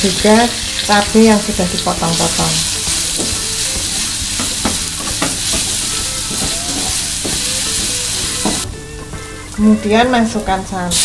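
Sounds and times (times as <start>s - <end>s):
spice paste sizzling in a wok: 0.0s - 8.6s.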